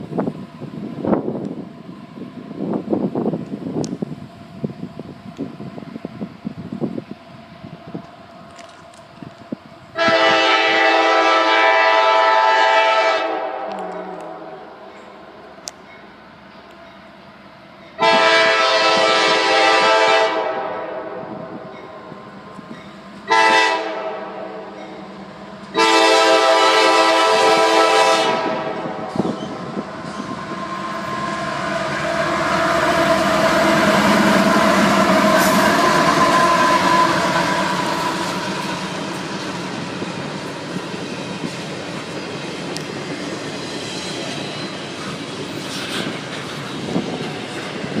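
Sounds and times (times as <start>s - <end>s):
train cars rail noise: 0.0s - 48.0s
train air horn blasts: 10.0s - 14.9s, 18.0s - 22.3s, 23.2s - 39.4s
locomotive rumble: 21.2s - 48.0s.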